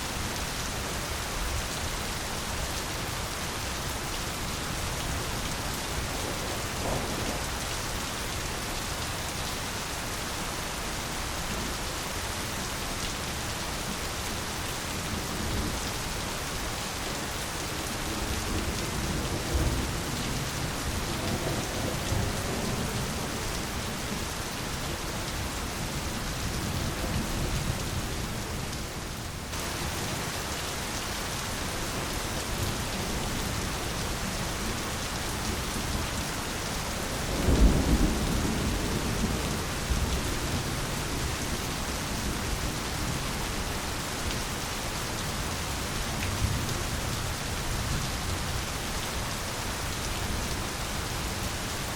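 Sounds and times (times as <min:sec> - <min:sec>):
heavy rain falling: 0:00.0 - 0:51.9
low thunder rumbling: 0:05.9 - 0:08.0, 0:37.2 - 0:41.4.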